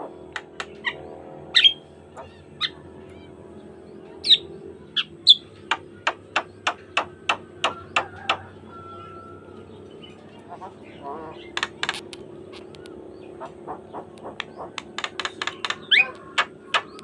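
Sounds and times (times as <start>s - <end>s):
rapid run of sharp bird notes: 0.0s - 17.0s
bird calling with whistles: 1.6s - 2.8s, 4.2s - 4.4s, 5.0s - 5.5s, 13.4s - 17.0s.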